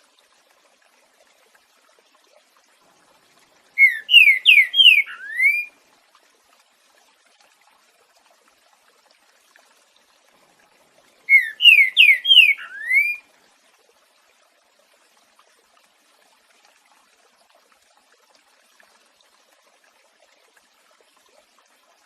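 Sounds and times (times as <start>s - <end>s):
faint water trickle: 0.0s - 22.0s
bird whistling song: 3.8s - 5.7s, 11.3s - 13.2s.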